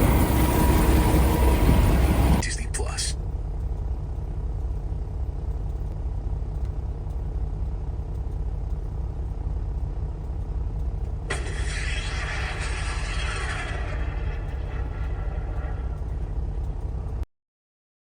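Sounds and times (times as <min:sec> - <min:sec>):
truck engine idling: 0:00.0 - 0:17.2
hiss: 0:11.3 - 0:15.9.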